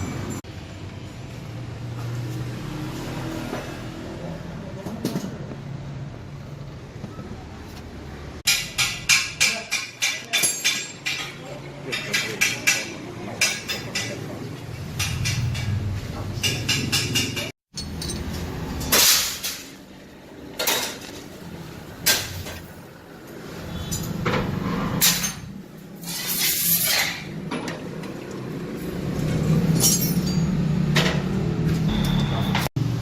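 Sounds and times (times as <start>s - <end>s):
metal clinks and knocks: 8.5s - 14.3s, 16.4s - 19.7s, 29.2s - 31.2s.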